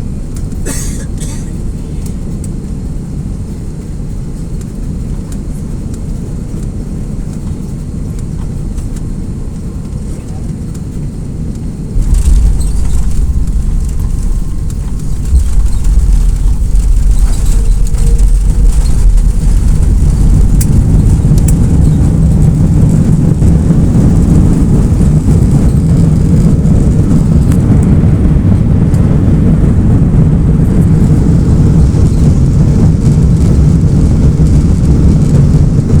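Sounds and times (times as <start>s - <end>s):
airplane landing rumble: 0.0s - 36.0s.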